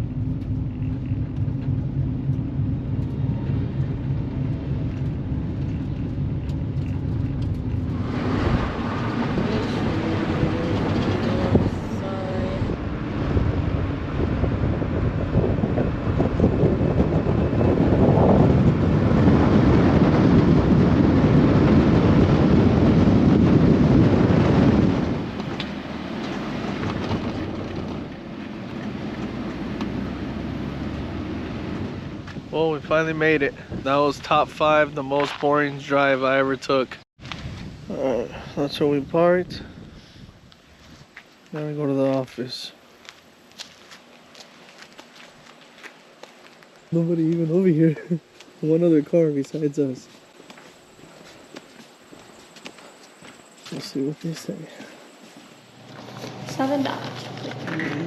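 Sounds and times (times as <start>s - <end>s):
van engine hum: 0.0s - 35.6s, 49.8s - 58.0s
wind and road noise: 0.0s - 58.0s.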